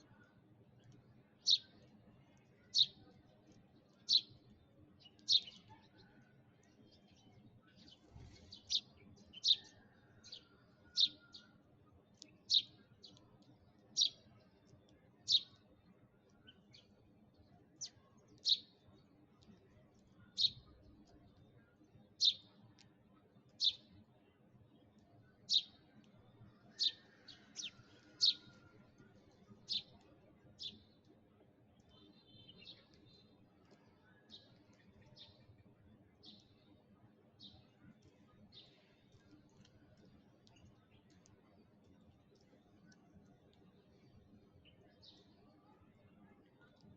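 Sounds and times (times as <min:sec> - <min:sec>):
sparrow chirping: 0:01.4 - 0:01.8, 0:02.6 - 0:03.0, 0:03.9 - 0:05.8, 0:07.7 - 0:11.5, 0:12.1 - 0:13.2, 0:13.8 - 0:14.6, 0:15.2 - 0:15.6, 0:17.8 - 0:18.8, 0:20.2 - 0:20.9, 0:22.2 - 0:22.6, 0:23.6 - 0:23.9, 0:25.4 - 0:25.8, 0:26.6 - 0:28.6, 0:29.6 - 0:30.0
soft ticks: 0:12.1 - 0:15.6, 0:39.1 - 0:43.7.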